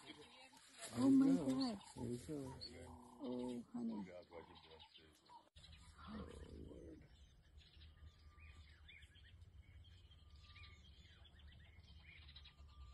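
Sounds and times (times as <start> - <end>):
birds chirping: 0.0 - 12.9.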